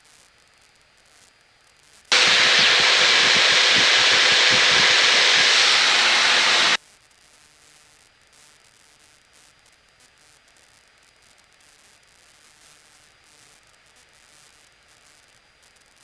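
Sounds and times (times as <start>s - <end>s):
radio static hiss: 2.1s - 6.8s.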